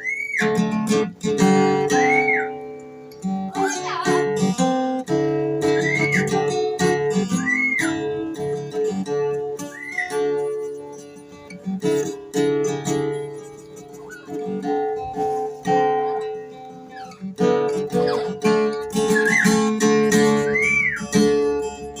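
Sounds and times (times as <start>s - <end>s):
rising and falling whistles: 0.0s - 0.6s, 2.0s - 2.6s, 5.7s - 6.4s, 7.4s - 8.0s, 9.6s - 10.2s, 19.2s - 19.6s, 20.4s - 21.1s
acoustic guitar music: 0.0s - 22.0s.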